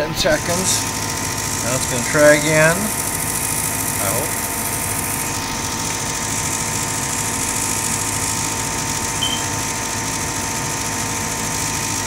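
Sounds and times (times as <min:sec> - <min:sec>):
furnace motor humming: 0:00.0 - 0:12.0
high chirp: 0:09.2 - 0:09.6.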